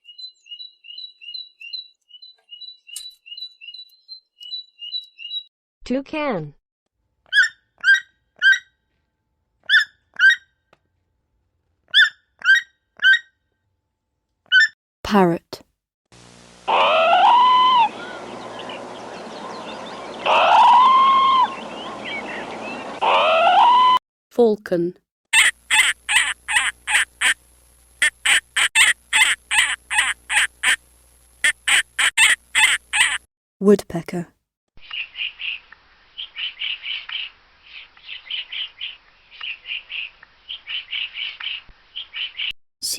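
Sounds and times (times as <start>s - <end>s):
toucan calling: 7.3s - 8.7s, 9.6s - 10.4s, 16.7s - 24.0s, 25.4s - 27.4s, 28.0s - 30.8s, 31.4s - 33.3s
falcon kek-kek call: 16.7s - 18.7s, 28.0s - 30.8s.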